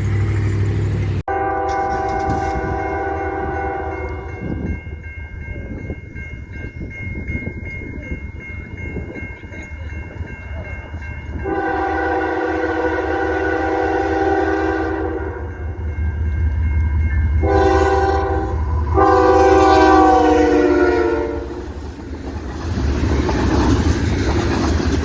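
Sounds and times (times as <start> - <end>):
low rumble of train: 0.0 - 25.0
locomotive air horn chord: 1.3 - 4.4, 11.4 - 15.8, 17.4 - 21.7.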